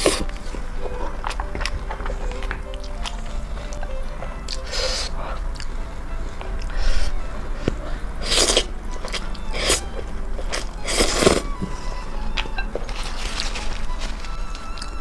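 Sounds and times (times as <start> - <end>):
person biting and chewing food: 0.0 - 5.8, 6.5 - 11.6.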